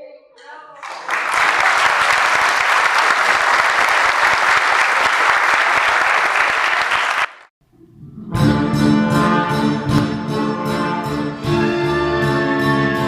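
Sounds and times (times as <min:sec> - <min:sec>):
audience applauding: 0:00.8 - 0:07.5.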